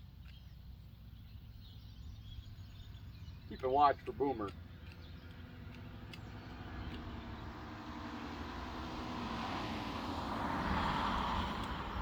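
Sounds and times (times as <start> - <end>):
vehicle passing by: 5.2 - 12.0.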